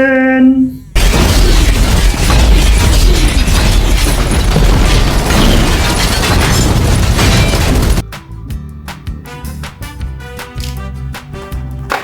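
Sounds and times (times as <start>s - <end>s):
explosion booms and rumble: 1.0s - 8.0s.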